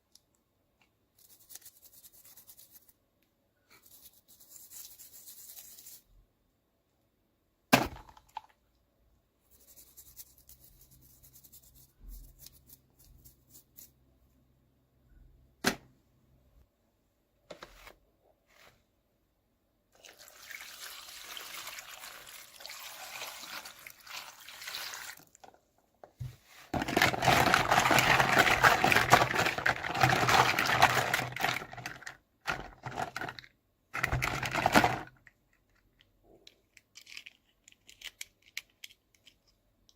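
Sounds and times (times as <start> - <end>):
packaging rustling: 26.8 - 35.1.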